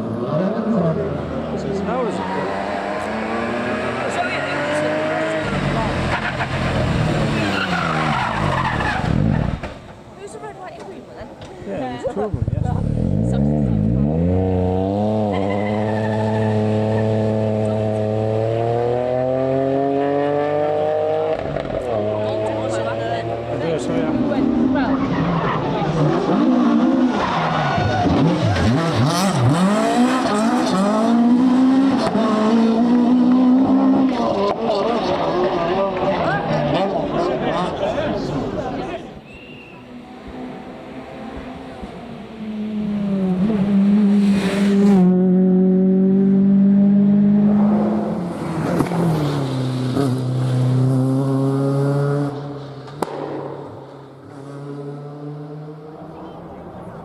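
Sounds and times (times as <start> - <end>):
rally car engine revving: 0.0 - 9.9, 12.1 - 57.0
sharp crack: 52.8 - 54.0.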